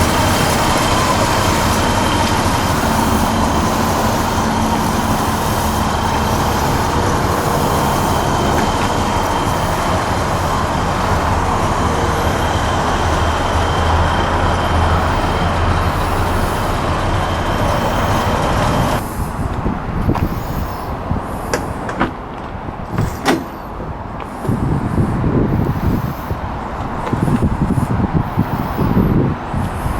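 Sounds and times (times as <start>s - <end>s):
pickup truck engine running: 0.0s - 29.9s.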